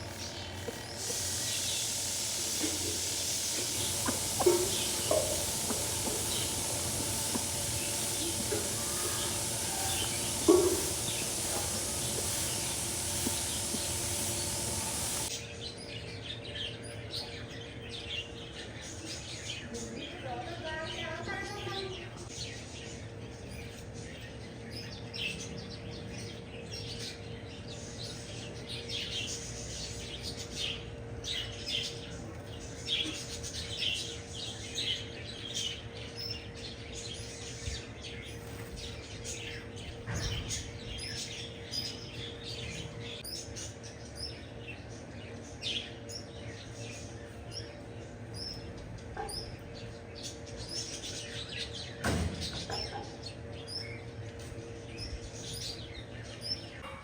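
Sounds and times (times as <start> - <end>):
steady low hum: 0.0 - 15.4
small birds chirping: 0.0 - 56.8.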